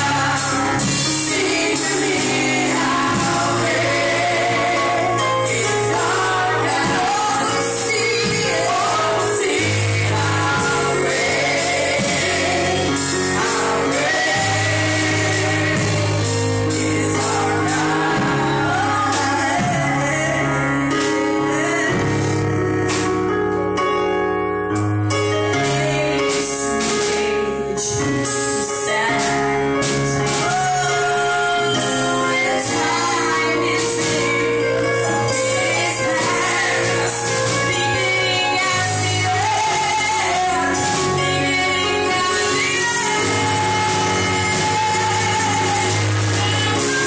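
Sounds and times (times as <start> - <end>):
men and women singing together: 0.0 - 22.2, 28.8 - 47.0
steady bass notes: 0.0 - 28.6
live band: 0.0 - 47.0.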